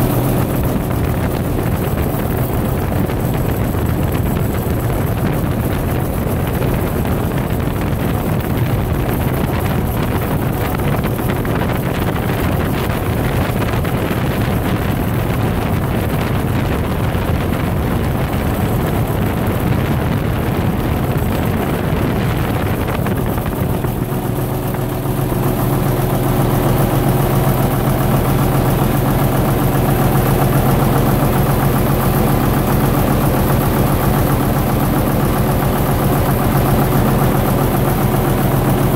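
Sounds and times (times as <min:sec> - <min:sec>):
diesel generator running: 0:00.0 - 0:38.9.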